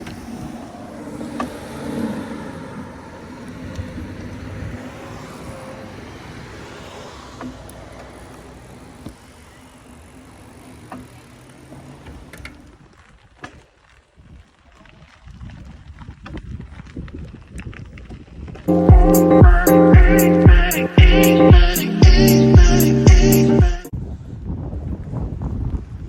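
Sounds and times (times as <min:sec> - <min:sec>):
vehicle engine and tyre noise: 0:00.0 - 0:14.6.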